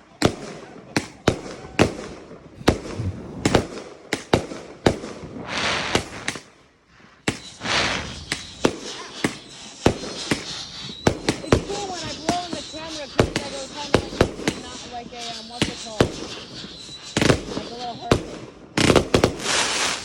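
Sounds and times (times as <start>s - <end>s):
fireworks banging: 0.2s - 6.6s, 7.2s - 20.0s
fireworks hissing bursts: 1.0s - 20.0s.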